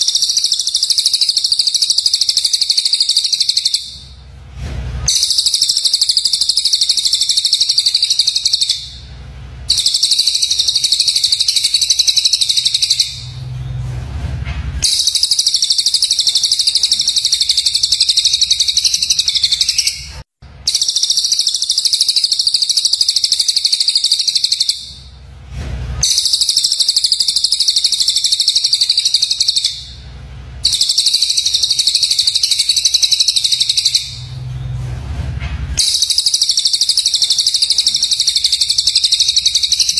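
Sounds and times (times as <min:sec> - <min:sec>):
songbird high-pitched chatter: 0:09.7 - 0:13.2, 0:14.8 - 0:20.1.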